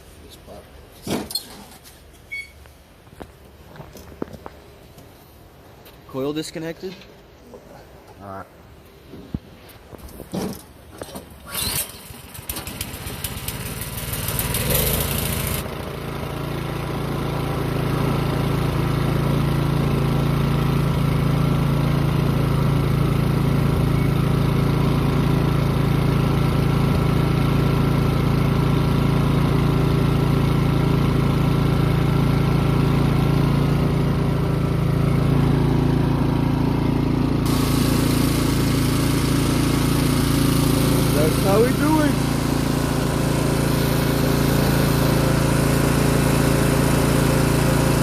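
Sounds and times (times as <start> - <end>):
snowblower engine cranking and running: 10.0 - 48.0.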